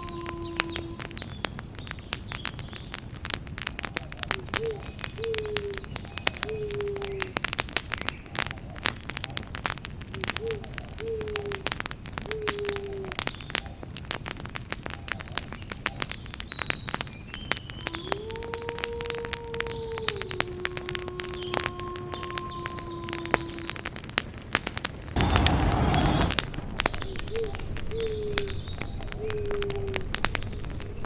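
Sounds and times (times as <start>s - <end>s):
campfire crackling and popping: 0.0s - 31.0s
owl hooting: 17.8s - 23.8s.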